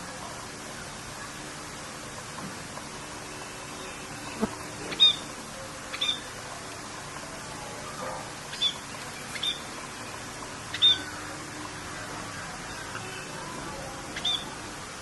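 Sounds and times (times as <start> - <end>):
rain hissing: 0.0 - 15.0
high bird chirps: 3.8 - 5.3, 5.9 - 6.3, 8.5 - 9.7, 10.7 - 11.2, 14.2 - 14.6.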